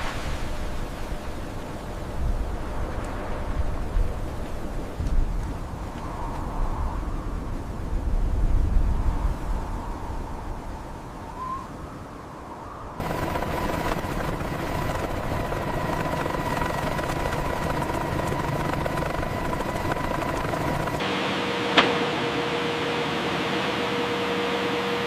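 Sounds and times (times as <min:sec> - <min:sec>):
machine whining: 0:13.0 - 0:25.0.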